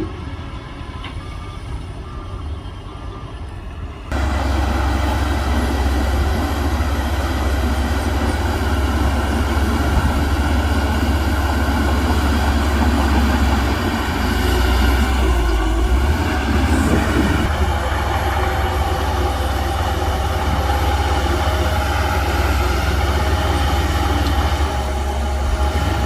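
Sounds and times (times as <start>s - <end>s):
diesel earthmoving machinery: 0.0s - 26.0s.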